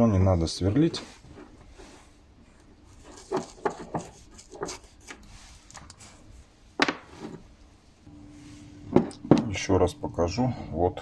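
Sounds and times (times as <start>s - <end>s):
light clicks and rubs: 0.9s - 6.5s.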